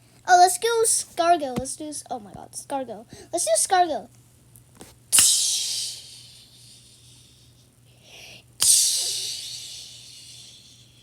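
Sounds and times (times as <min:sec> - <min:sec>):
person making hissing noise: 0:05.1 - 0:11.0.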